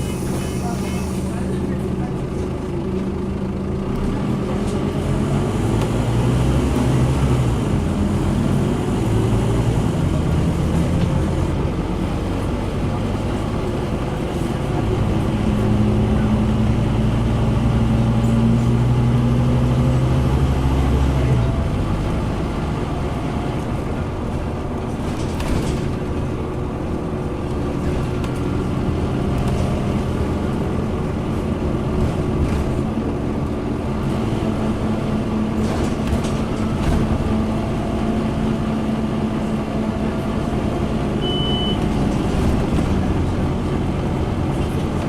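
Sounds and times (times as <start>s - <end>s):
bus engine drone: 0.0s - 45.0s
road rumble: 0.0s - 45.0s
short high beep: 41.2s - 41.8s.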